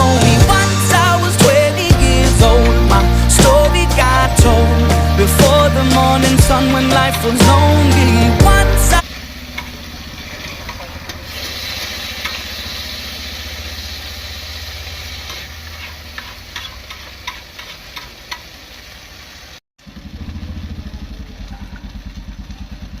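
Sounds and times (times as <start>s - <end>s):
chicken sizzling in a pan: 9.0s - 19.6s.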